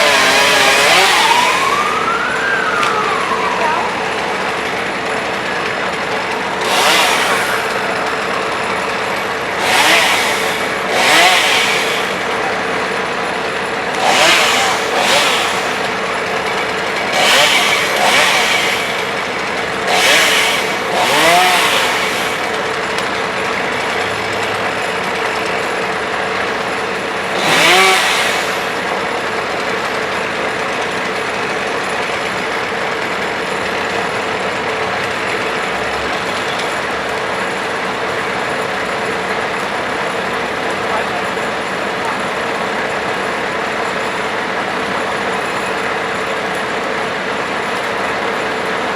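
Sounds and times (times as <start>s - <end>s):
branches being chipped: 0.0s - 32.4s
brush chipper running: 0.0s - 48.9s.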